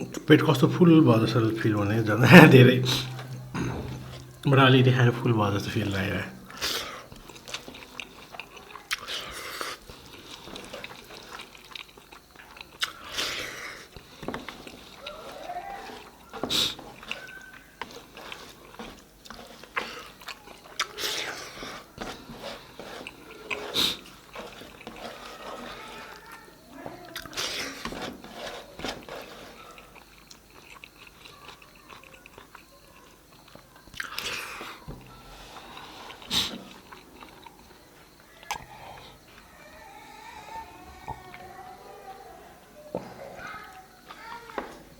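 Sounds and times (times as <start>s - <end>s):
chewing: 2.8s - 4.5s, 6.3s - 41.7s
slurp: 6.5s - 26.3s, 27.1s - 32.7s, 33.3s - 37.8s
lip smacks and mouth clicks: 10.5s - 13.3s, 38.4s - 38.7s.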